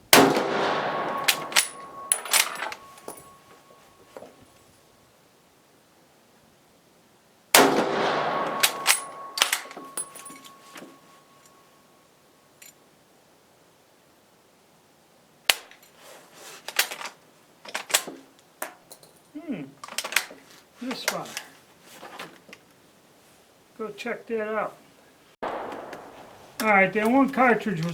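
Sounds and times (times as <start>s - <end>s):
rifle shot: 0.1s - 3.4s, 7.6s - 11.2s, 25.4s - 26.9s.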